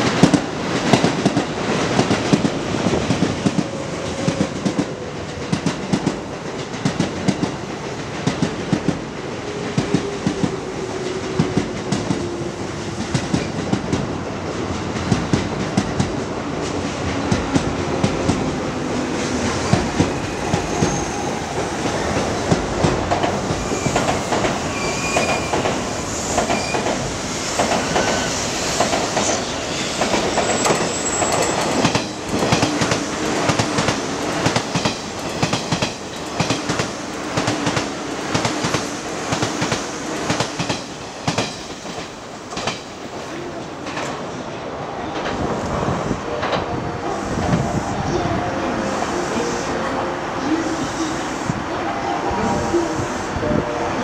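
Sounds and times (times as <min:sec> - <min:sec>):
high wheel squeals: 0:23.5 - 0:26.9.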